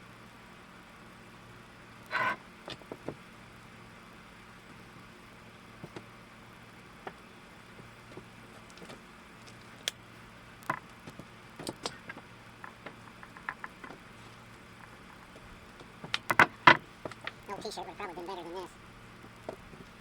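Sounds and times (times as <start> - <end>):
wooden boards clicking and tapping: 16.0 - 17.4.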